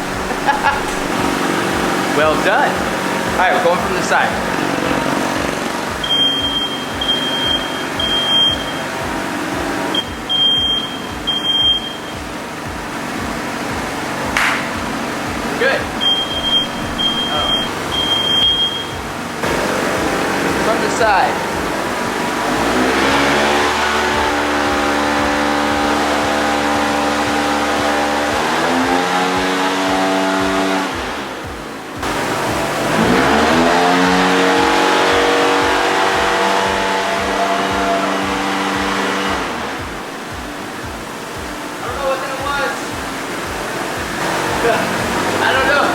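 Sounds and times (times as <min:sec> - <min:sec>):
machine blowing noise: 0:00.0 - 0:45.9
steady tones: 0:00.0 - 0:45.9
high electronic beeps: 0:04.3 - 0:12.3, 0:15.8 - 0:19.1.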